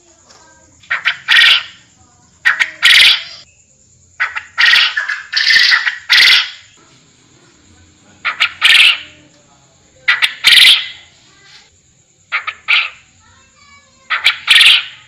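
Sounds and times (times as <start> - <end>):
quail calling harsh notes: 0.8 - 3.5, 4.2 - 6.8, 8.2 - 9.2, 10.1 - 11.1, 12.3 - 13.1, 14.0 - 15.0.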